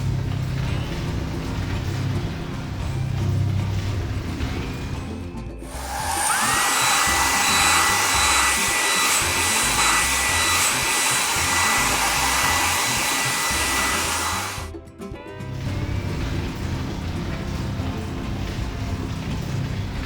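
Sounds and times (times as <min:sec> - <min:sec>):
background music: 0:00.0 - 0:20.0
blower air rush with motor whine: 0:05.6 - 0:14.8.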